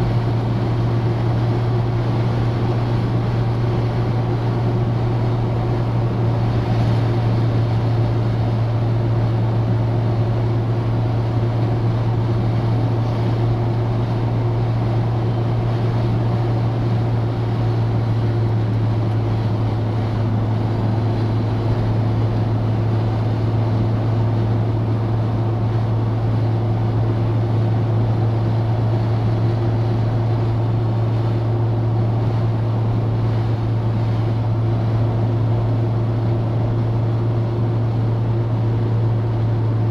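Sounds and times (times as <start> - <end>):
car engine low drone: 0.0 - 39.9
road and wind noise: 0.0 - 39.9.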